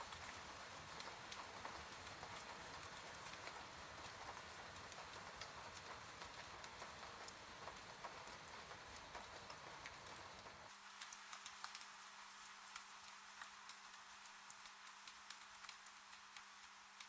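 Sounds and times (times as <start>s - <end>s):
soft rain on a window: 0.0s - 17.0s
raindrop taps: 0.2s - 11.9s.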